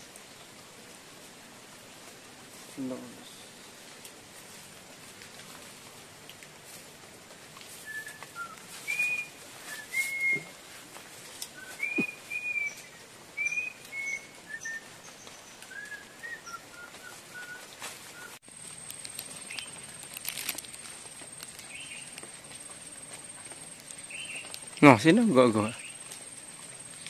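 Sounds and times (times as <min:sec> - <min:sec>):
birds whistling short notes: 0:07.8 - 0:10.5, 0:11.6 - 0:18.4.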